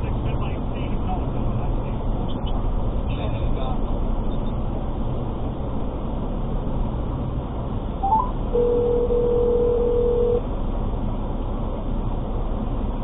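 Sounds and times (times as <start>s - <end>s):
vehicle rumble: 0.0s - 13.0s
steady electronic beep: 8.0s - 10.4s.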